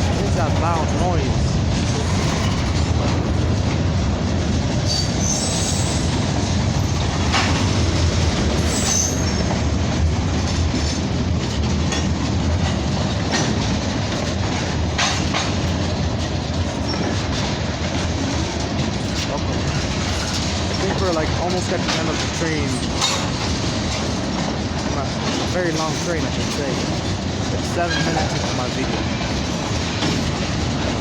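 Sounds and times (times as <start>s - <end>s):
freight train cars rumbling: 0.0s - 31.0s
wheel squeals: 4.9s - 6.2s, 8.6s - 9.5s.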